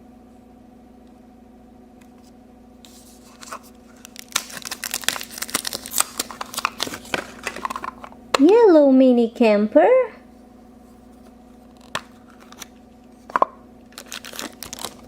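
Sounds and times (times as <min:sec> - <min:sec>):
packaging being torn and crinkled: 0:02.9 - 0:08.0, 0:11.7 - 0:12.8, 0:13.9 - 0:15.0.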